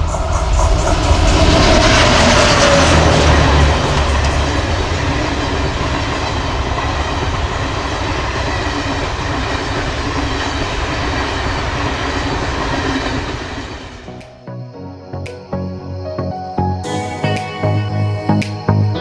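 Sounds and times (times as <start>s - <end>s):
wheels clacking over rail joints: 0.0s - 14.1s
train rushing past: 0.0s - 14.6s.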